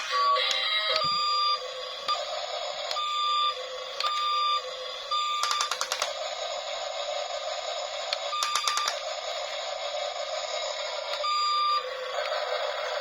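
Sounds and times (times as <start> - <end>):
rapid clicking: 5.4 - 6.2.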